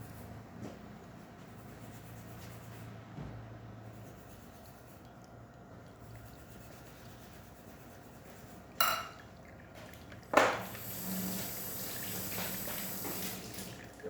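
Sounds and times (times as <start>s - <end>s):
liquid streaming and hissing: 9.3s - 14.0s
espresso machine hiss: 10.6s - 13.4s.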